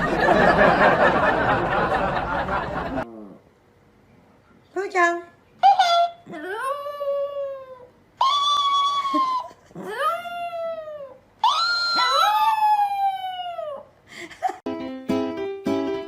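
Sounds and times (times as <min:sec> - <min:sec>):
pet animal howling: 0:06.6 - 0:13.8.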